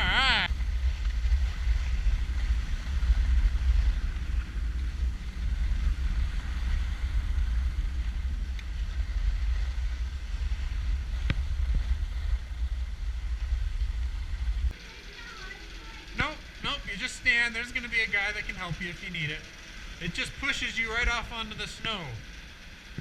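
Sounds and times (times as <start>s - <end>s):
wind buffeting microphone: 0.0s - 14.8s.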